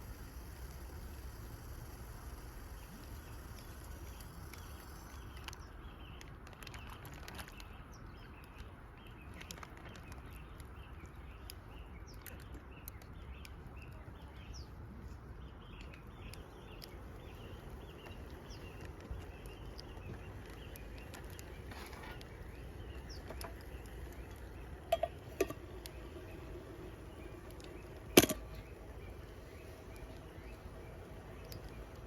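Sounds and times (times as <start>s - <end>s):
sharp ticks: 0.0s - 5.8s, 15.8s - 32.0s
low outdoor rumble: 0.0s - 32.0s
small birds chirping: 0.0s - 32.0s.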